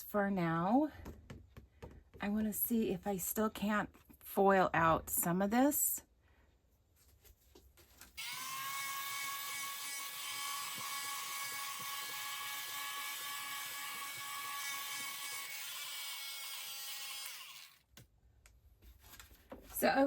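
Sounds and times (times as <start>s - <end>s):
small electric motor whining: 8.2s - 17.8s.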